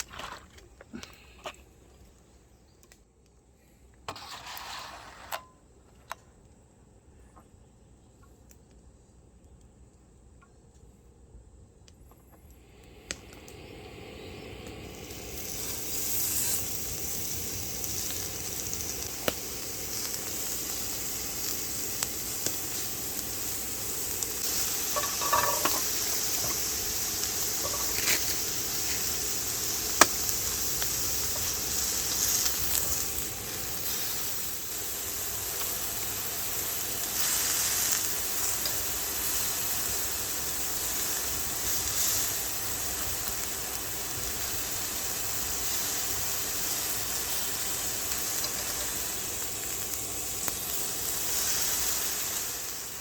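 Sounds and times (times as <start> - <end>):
food sizzling in a pan: 4.1 - 5.3, 13.2 - 53.0.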